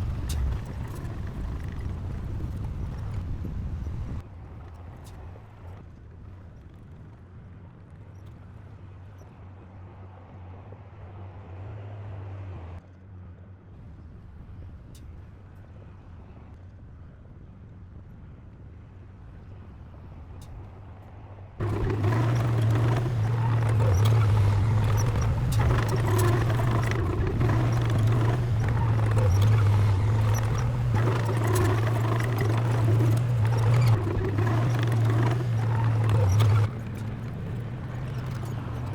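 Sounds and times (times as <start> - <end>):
heavy machinery diesel engine: 0.0 - 3.2, 21.6 - 38.9
metal clanks rattling: 21.6 - 38.9.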